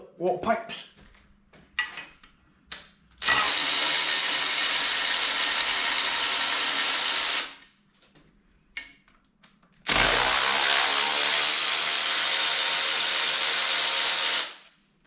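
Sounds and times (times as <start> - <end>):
power tool running: 3.2 - 7.6, 9.9 - 14.6.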